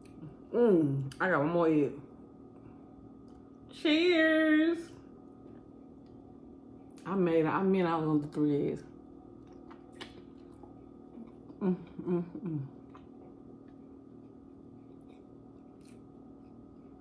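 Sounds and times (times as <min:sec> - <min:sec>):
faint steady hum: 0:00.0 - 0:17.0
short hummed sounds: 0:00.0 - 0:17.0
close chewing: 0:12.8 - 0:17.0.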